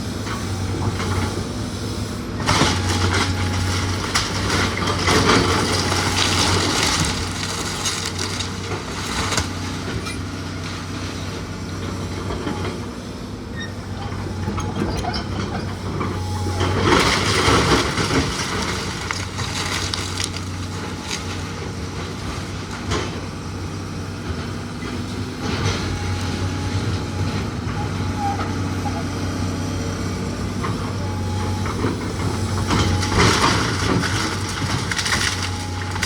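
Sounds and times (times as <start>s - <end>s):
heavy machine engine running: 0.0s - 36.0s
wood crunching and breaking: 2.7s - 9.9s, 16.6s - 21.7s, 32.0s - 36.0s.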